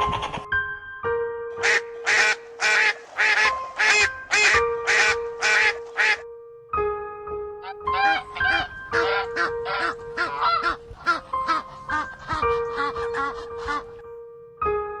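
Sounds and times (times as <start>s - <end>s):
music with long held notes: 0.0s - 15.0s
duck quacking: 1.6s - 6.2s, 7.8s - 14.0s.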